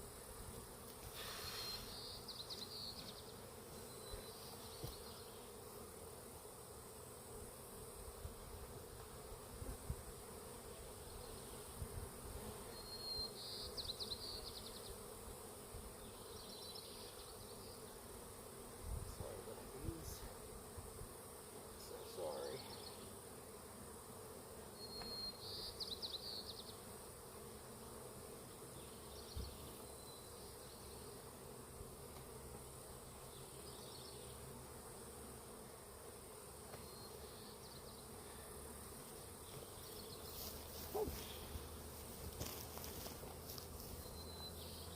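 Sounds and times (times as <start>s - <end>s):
honeybees buzzing: 0.0s - 44.9s.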